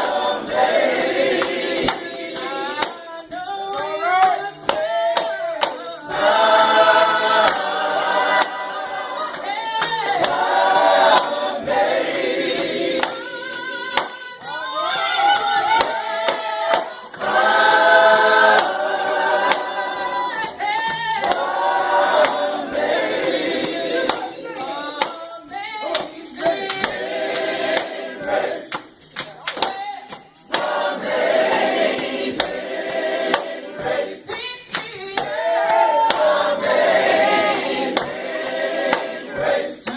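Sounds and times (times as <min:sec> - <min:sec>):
gospel group singing: 0:00.0 - 0:39.9
tambourine shaking: 0:00.0 - 0:39.9.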